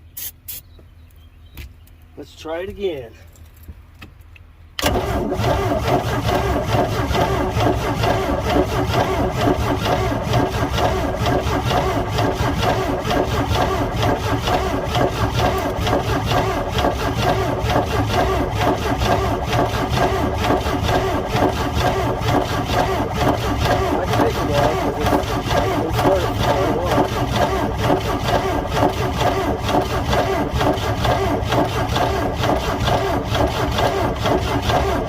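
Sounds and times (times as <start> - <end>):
boat engine cranking on starter: 4.8 - 35.0.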